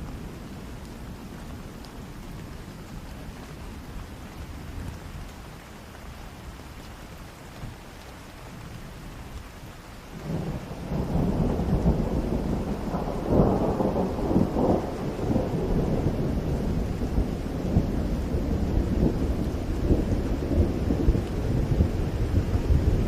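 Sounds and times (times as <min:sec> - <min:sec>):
rain falling: 0:00.0 - 0:23.0
thunder rumbling: 0:10.1 - 0:23.0.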